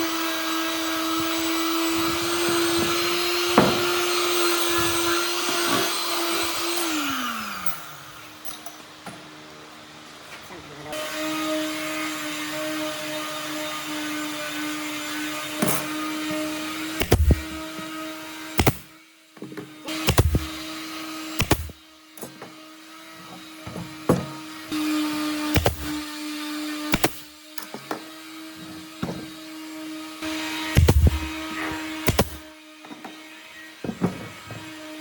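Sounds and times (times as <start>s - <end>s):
power tool motor hum and whine: 0.0s - 35.0s
loud knocks and thuds: 17.0s - 17.6s, 20.1s - 20.6s, 30.7s - 32.4s.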